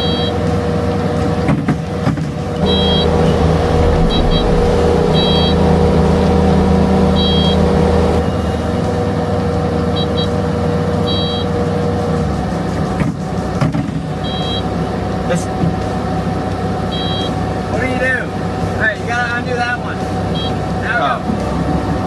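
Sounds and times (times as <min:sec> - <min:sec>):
skid steer engine running: 0:02.2 - 0:15.2
backup alarm beeps: 0:02.6 - 0:08.7, 0:14.2 - 0:14.6, 0:16.9 - 0:17.3.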